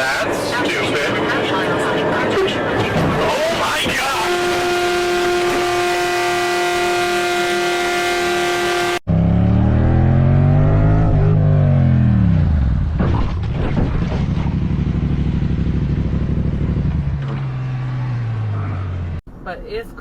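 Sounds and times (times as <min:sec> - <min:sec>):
vehicle engine revving: 0:01.0 - 0:19.2
car horn long blast: 0:03.8 - 0:09.0.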